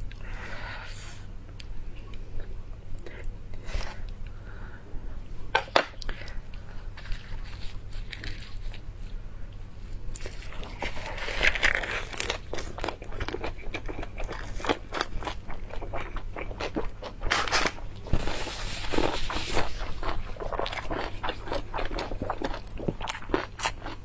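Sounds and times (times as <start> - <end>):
crunchy chewing of lettuce: 6.6 - 24.0.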